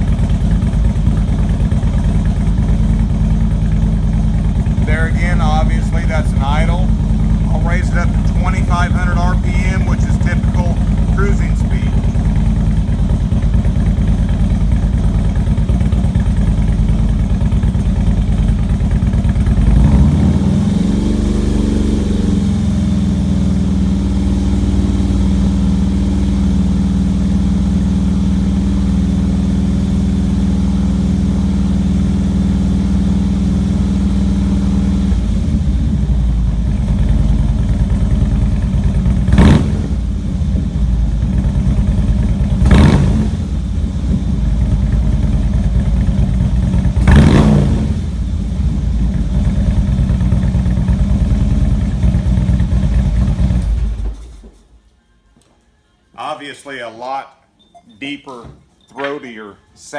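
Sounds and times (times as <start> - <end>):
motorcycle engine revving: 0.0 - 54.6
short sharp exhaust burst: 39.2 - 40.2, 42.6 - 43.7, 47.0 - 48.3.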